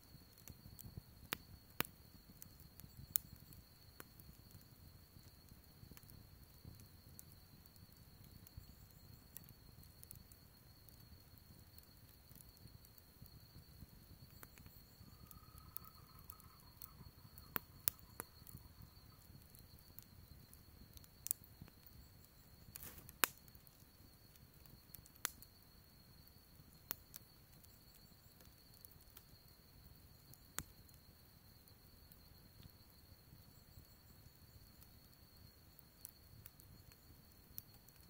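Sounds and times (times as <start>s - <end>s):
faint steady high tone: 0.0s - 38.0s
wood fire crackling: 0.0s - 38.0s.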